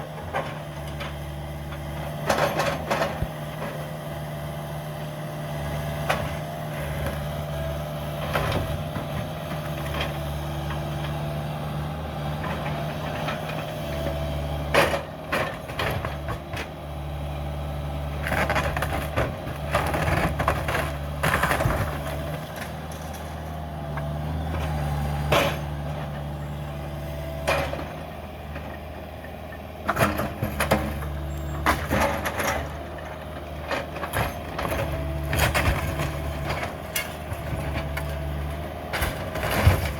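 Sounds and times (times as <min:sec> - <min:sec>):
excavator diesel engine running: 0:00.0 - 0:39.9
cracking and crunching demolition: 0:18.2 - 0:26.3, 0:29.9 - 0:39.9.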